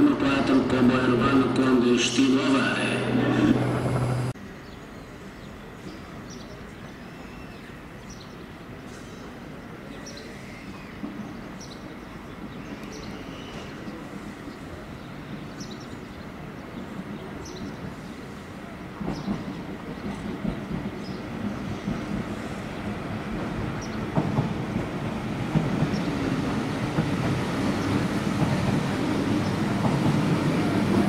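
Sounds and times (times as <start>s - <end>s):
electric train approaching: 0.0s - 8.9s, 10.4s - 31.0s
station background noise: 0.0s - 10.5s, 11.1s - 31.0s
small birds chirping: 4.6s - 24.2s, 25.7s - 26.5s.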